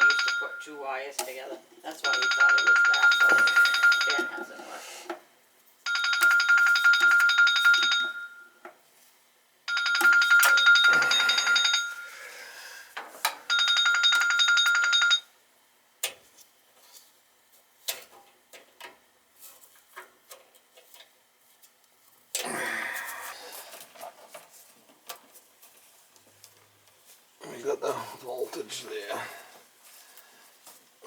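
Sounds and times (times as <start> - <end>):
telephone ringing: 0.0 - 0.9, 2.0 - 4.6, 5.9 - 8.6, 9.7 - 12.2, 13.4 - 15.3.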